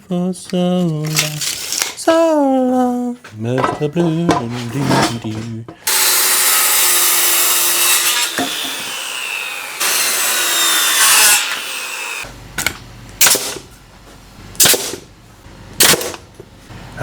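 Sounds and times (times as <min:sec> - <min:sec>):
power saw cutting wood: 0:05.8 - 0:12.3
nail gun shots: 0:13.2 - 0:13.6, 0:14.6 - 0:15.1, 0:15.8 - 0:16.3.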